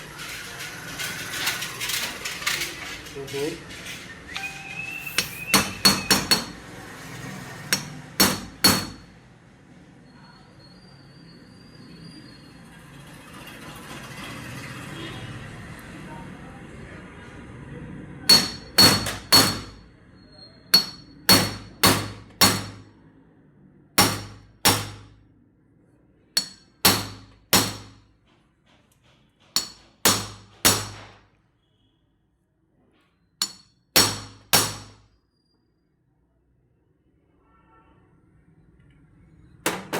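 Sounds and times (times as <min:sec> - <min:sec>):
hammer striking metal: 0:04.4 - 0:06.7, 0:07.7 - 0:09.1, 0:18.3 - 0:19.8, 0:20.7 - 0:22.9, 0:24.0 - 0:25.2, 0:26.4 - 0:28.0, 0:29.6 - 0:31.2, 0:33.4 - 0:35.0.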